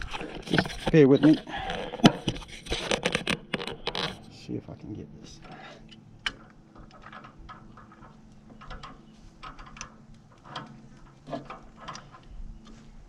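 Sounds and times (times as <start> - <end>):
faint steady hum: 0.0 - 13.0
hand tools clicking and tapping: 5.4 - 12.9.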